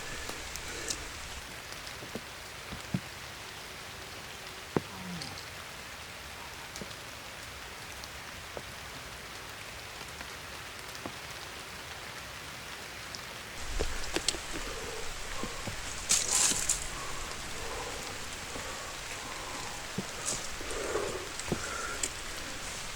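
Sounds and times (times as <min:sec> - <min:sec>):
single raindrops ticking: 0:00.0 - 0:02.2, 0:13.6 - 0:22.9
loud crackling rustle: 0:00.0 - 0:02.9, 0:13.6 - 0:22.9
steady rain falling: 0:00.0 - 0:22.9.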